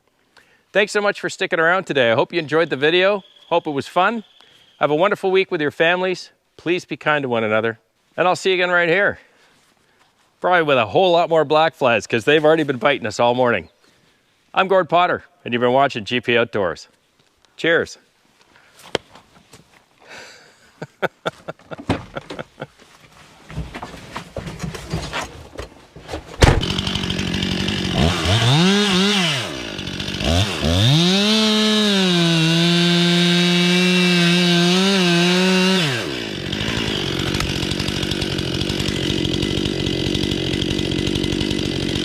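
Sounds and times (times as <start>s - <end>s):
chainsaw revving and idling: 26.6s - 42.0s.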